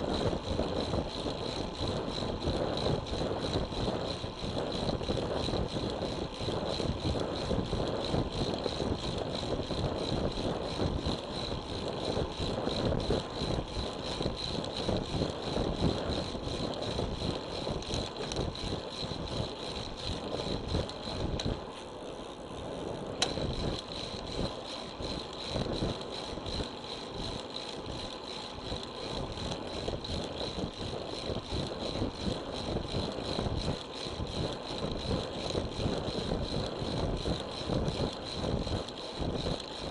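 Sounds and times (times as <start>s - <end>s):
wind buffeting microphone: 0.0s - 21.6s.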